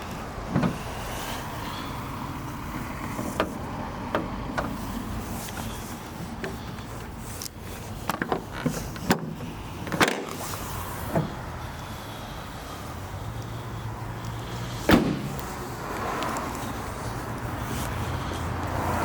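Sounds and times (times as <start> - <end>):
clicks and knocks on car: 0.5 - 0.8.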